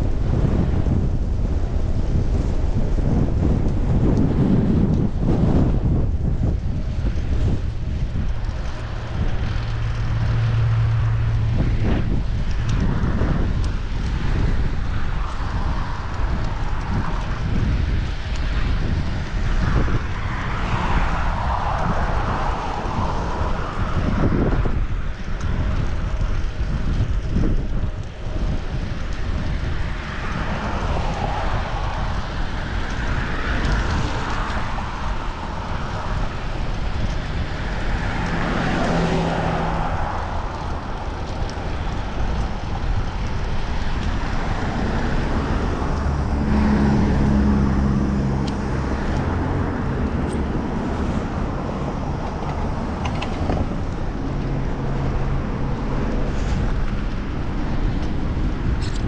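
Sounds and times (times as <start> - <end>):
road traffic passing: 0.0 - 59.0
vehicle engine humming by: 0.0 - 59.0
wind rushing over microphone: 0.0 - 59.0.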